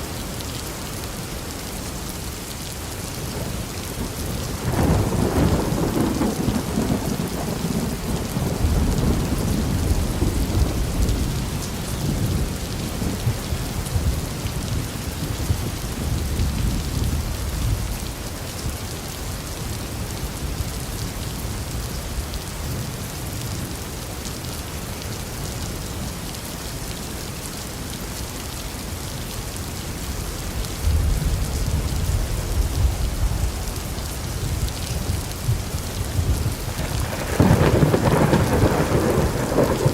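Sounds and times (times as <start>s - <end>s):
rain falling: 0.0s - 39.9s
thunder rumbling: 4.1s - 17.8s, 30.8s - 39.9s.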